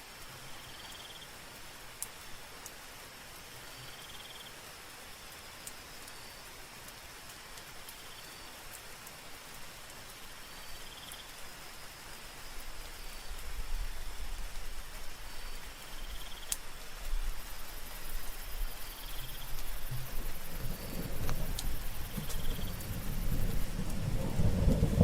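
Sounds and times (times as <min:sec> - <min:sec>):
soft rain: 0:00.0 - 0:25.0
insect chirping in trills: 0:00.5 - 0:01.4, 0:03.6 - 0:06.5, 0:07.9 - 0:08.6, 0:10.4 - 0:25.0
raindrop clicks: 0:16.0 - 0:25.0.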